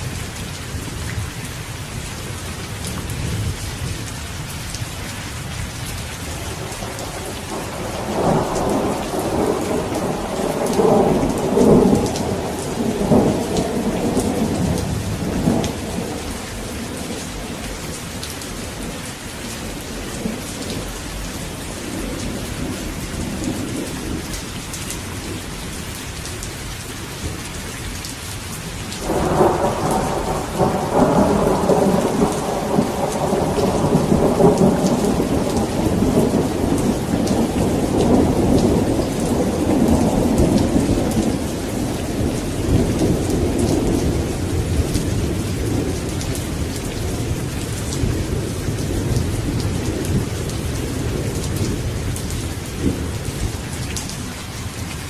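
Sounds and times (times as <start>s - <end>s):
heavy rain: 0.0s - 55.0s
rolling thunder: 6.3s - 24.4s, 29.0s - 54.0s.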